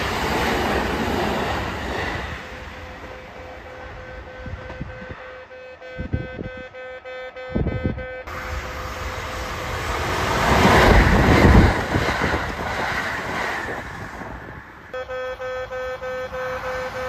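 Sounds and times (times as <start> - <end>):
train passing at speed: 0.0 - 6.1, 8.2 - 17.0
level crossing warning bell: 14.9 - 17.0.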